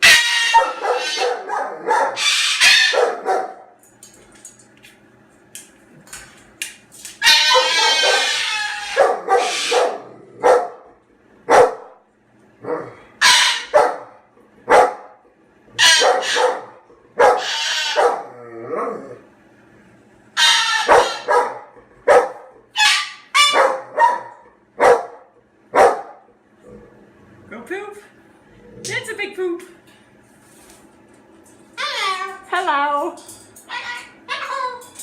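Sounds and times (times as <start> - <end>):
cockatoo harsh calls: 0.0 - 3.2, 7.2 - 10.1, 13.2 - 13.8, 15.8 - 18.2, 20.4 - 21.5, 22.7 - 23.7, 31.8 - 32.4, 33.7 - 34.8.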